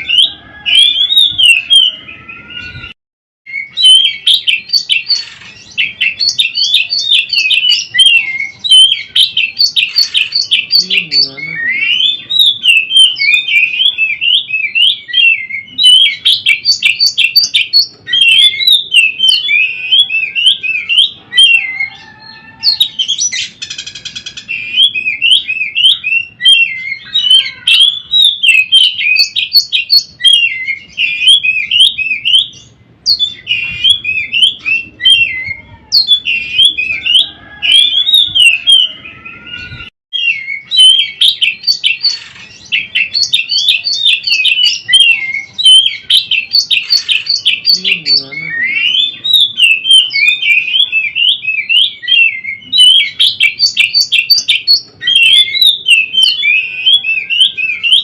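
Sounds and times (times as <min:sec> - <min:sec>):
bird singing whistles and chirps: 0:00.0 - 0:58.0
bird harsh rattle: 0:05.1 - 0:05.7, 0:42.1 - 0:42.6.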